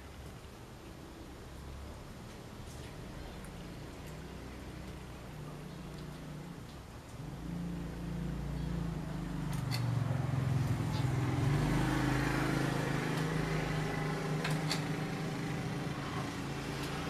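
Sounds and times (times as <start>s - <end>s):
vehicle engine running: 7.3s - 17.0s.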